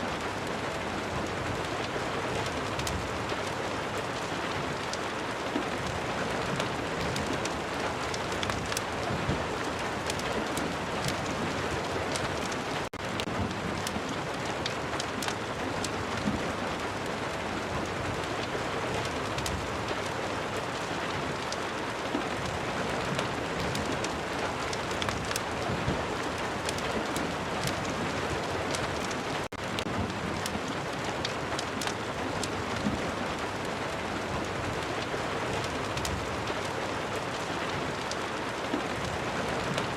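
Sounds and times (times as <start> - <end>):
rain falling: 0.0 - 39.9
fireplace crackling and popping: 0.2 - 39.9.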